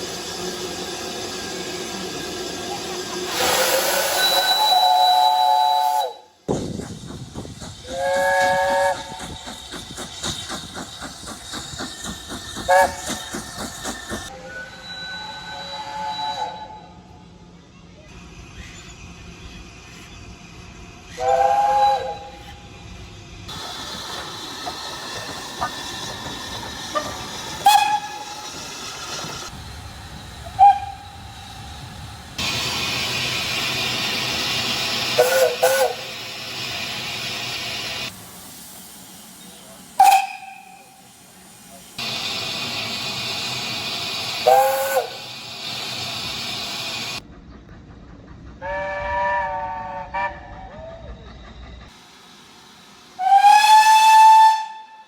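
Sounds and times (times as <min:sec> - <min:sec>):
steam locomotive chime whistle: 0:00.0 - 0:06.4, 0:07.9 - 0:09.4, 0:12.6 - 0:13.2, 0:14.2 - 0:17.2, 0:21.1 - 0:22.6, 0:26.9 - 0:28.8, 0:30.5 - 0:31.3, 0:35.0 - 0:36.2, 0:39.4 - 0:41.2, 0:42.0 - 0:45.4, 0:48.6 - 0:50.8, 0:53.2 - 0:55.0
locomotive exhaust beat: 0:00.0 - 0:14.3, 0:23.5 - 0:52.0.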